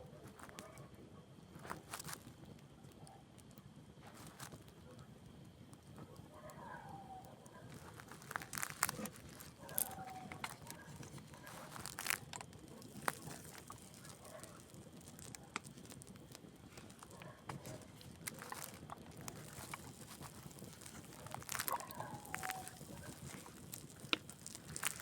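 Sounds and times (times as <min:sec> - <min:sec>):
campfire crackling and popping: 0:00.0 - 0:25.0
faint steady hiss: 0:00.0 - 0:25.0.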